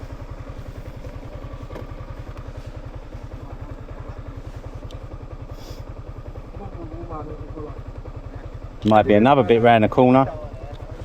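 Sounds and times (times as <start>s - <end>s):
small motorcycle engine running: 0.0s - 11.0s
faint knocks from bike: 0.7s - 4.2s.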